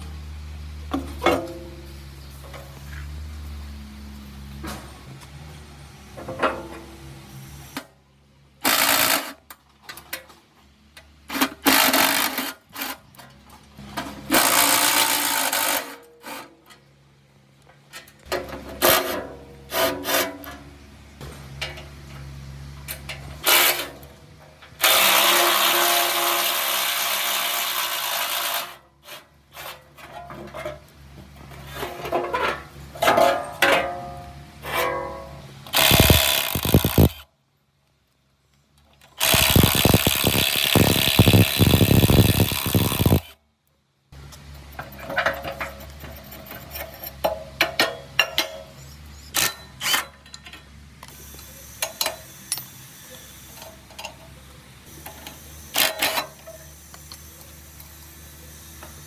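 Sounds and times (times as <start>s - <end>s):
power tool running: 24.8s - 28.8s, 35.6s - 37.2s, 39.2s - 43.4s
metal parts clanking: 29.1s - 37.2s, 44.6s - 52.8s, 55.0s - 57.8s.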